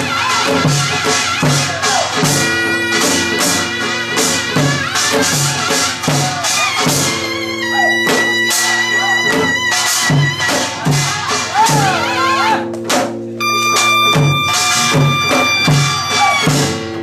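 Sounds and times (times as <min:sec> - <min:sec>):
bright metallic percussion hits: 0:12.6 - 0:17.0.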